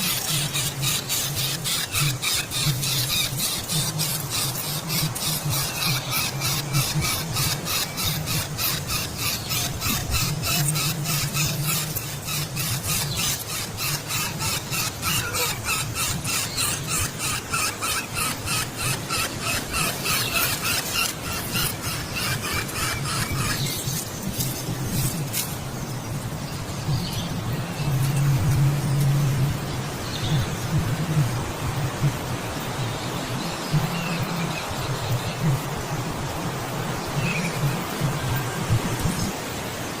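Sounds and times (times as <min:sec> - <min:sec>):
short squeaky animal calls: 0:00.0 - 0:23.8
steady low hum: 0:00.0 - 0:38.0.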